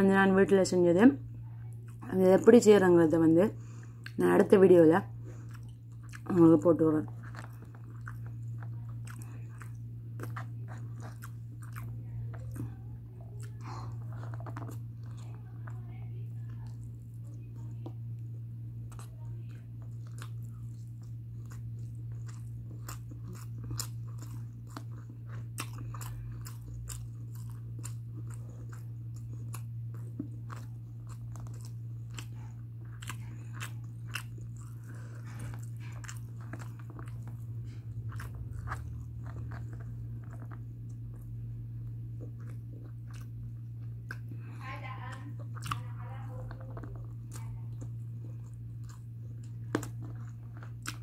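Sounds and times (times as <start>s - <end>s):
low hum: 0.0s - 51.0s
chewing mouth clicks and smacks: 5.4s - 6.3s, 7.1s - 15.8s, 18.9s - 44.6s, 45.2s - 45.9s, 46.5s - 51.0s.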